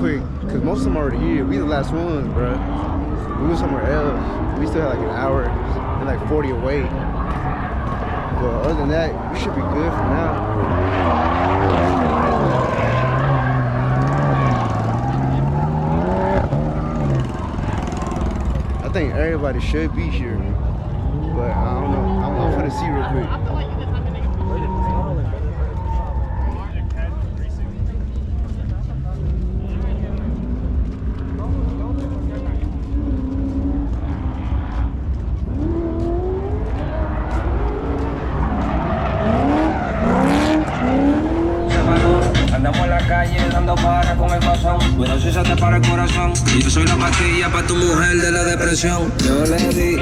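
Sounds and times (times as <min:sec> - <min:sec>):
car engine revving: 0:00.0 - 0:50.0
steady low rumble: 0:41.4 - 0:50.0.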